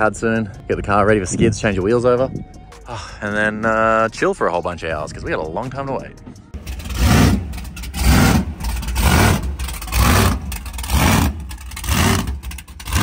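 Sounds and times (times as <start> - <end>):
car engine revving: 6.6 - 13.0.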